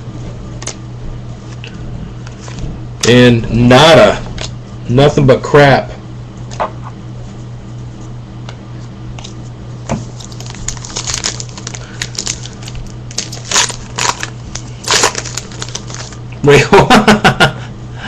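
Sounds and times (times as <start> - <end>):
steady electrical hum: 0.0 - 18.0
foil wrapper crinkling: 10.0 - 16.2.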